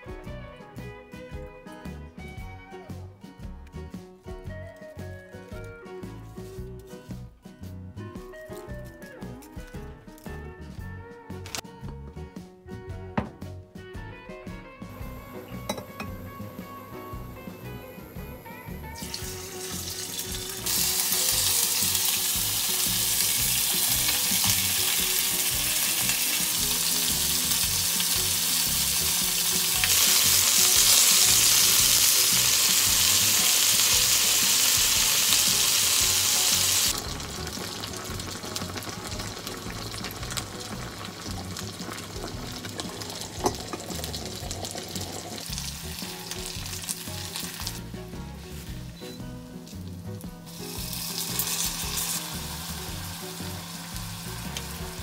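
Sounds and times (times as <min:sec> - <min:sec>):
food sizzling in a hot pan: 0:14.9 - 0:55.0.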